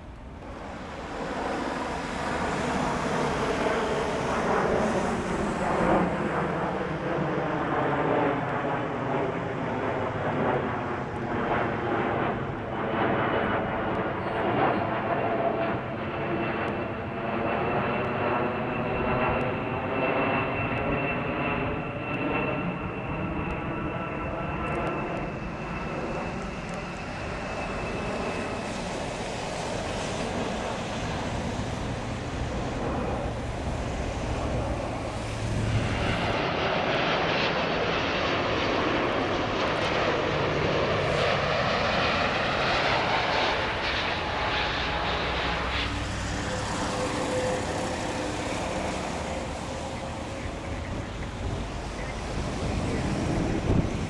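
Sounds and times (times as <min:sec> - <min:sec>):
jet engine whine: 0:00.0 - 0:54.0
jet roar: 0:00.0 - 0:54.0.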